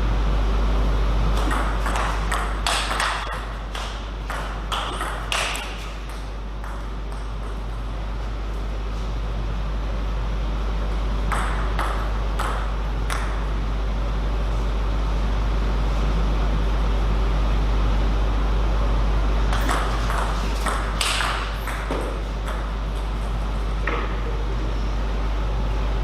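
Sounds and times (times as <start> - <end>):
steady low hum: 0.0 - 26.0
table tennis ball hits: 1.3 - 7.7, 11.3 - 13.6, 19.5 - 24.2.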